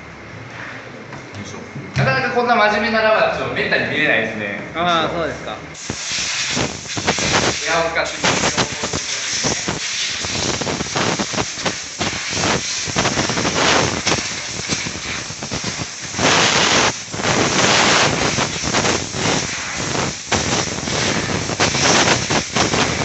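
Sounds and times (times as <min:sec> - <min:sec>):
compressed air blow gun hissing: 0:05.8 - 0:23.0.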